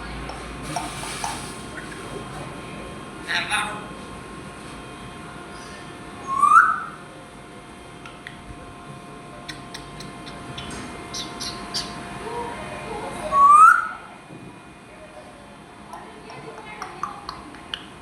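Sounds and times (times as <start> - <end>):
parrot whistling: 6.2 - 7.0, 9.5 - 12.0, 13.3 - 14.0
faint chirps and clicks: 9.4 - 11.9, 15.9 - 17.9.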